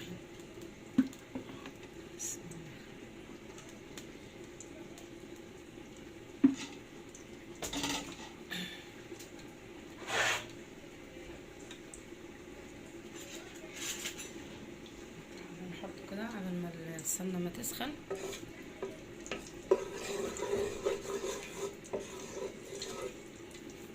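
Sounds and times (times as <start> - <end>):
pot and utensil handling: 13.1 - 14.4
scraping and rustling: 19.7 - 23.2.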